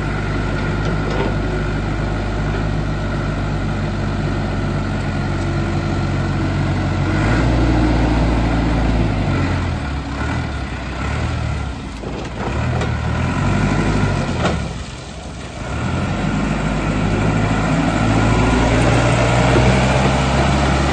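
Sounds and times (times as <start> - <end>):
forklift diesel engine revving: 0.0 - 20.9.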